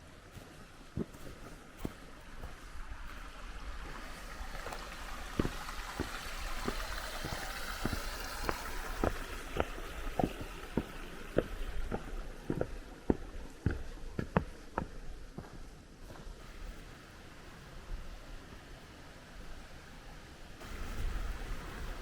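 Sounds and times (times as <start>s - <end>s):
footsteps on a mountain trail: 0.0s - 17.0s
mountain stream rushing: 0.0s - 22.0s.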